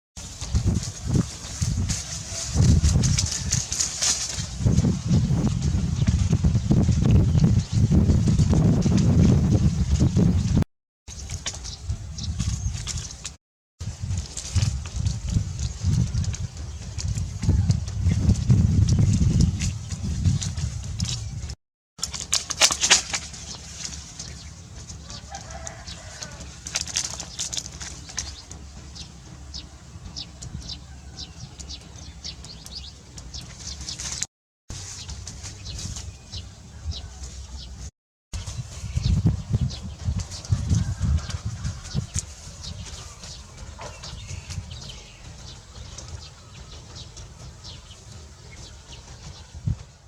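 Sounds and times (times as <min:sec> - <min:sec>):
birds chirping: 0:23.3 - 0:49.8.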